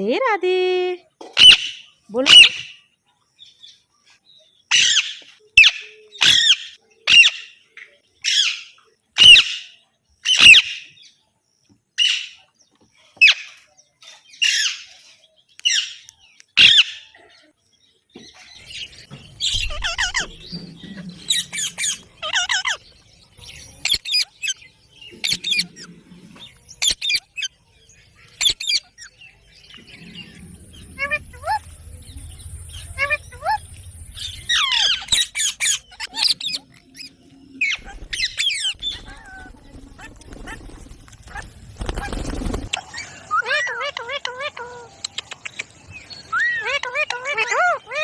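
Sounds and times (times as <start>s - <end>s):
parakeets screeching: 1.4s - 2.8s, 4.7s - 7.6s, 8.2s - 10.8s, 15.6s - 17.1s, 18.8s - 24.6s, 28.3s - 48.0s.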